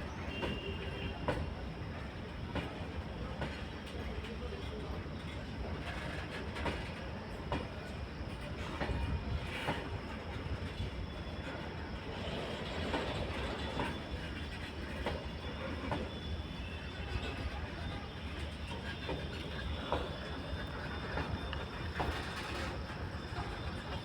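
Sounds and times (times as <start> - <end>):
wheels clicking over rail joints: 11.4 - 24.0.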